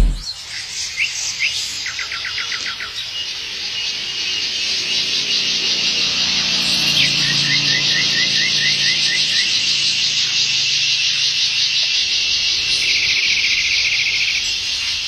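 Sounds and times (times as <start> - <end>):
bird chirping: 6.0 - 10.4.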